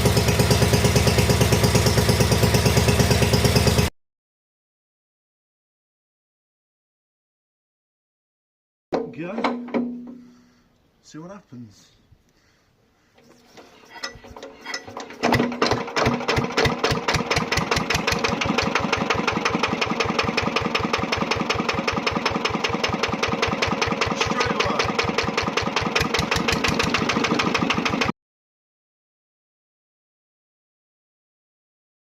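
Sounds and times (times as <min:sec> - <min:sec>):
stationary engine starting and running: 0:00.0 - 0:03.9, 0:13.3 - 0:28.1.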